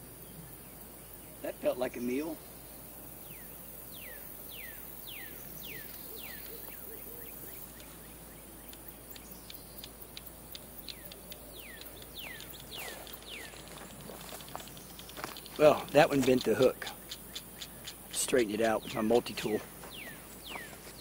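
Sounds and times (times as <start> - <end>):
faint ticks: 8.6 - 18.9.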